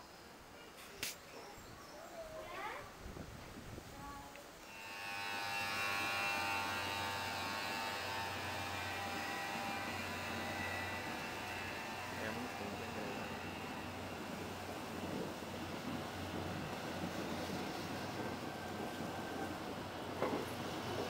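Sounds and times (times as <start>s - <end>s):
train passing with whine: 4.6s - 21.0s.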